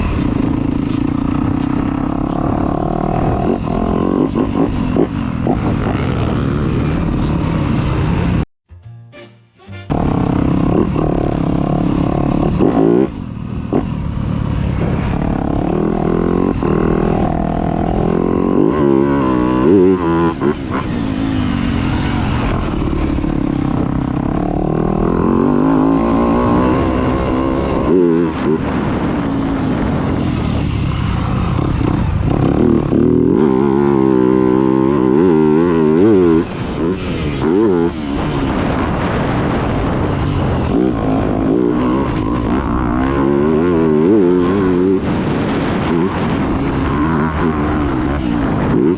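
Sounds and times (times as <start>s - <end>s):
motocross bike engine revving: 0.0s - 8.4s, 9.9s - 48.9s.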